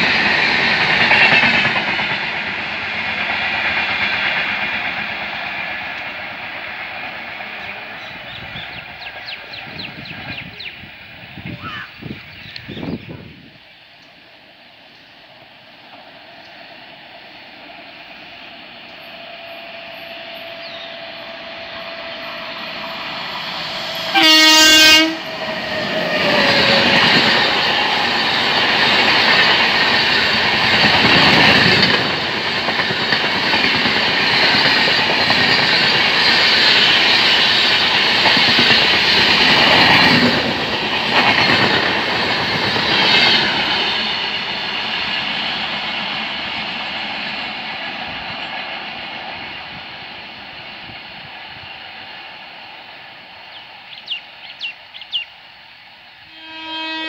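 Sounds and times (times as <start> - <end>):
train rumbling past: 0.0 - 57.0
wheels clacking over rail joints: 21.7 - 49.5
train horn blast: 23.9 - 27.1, 56.2 - 57.0.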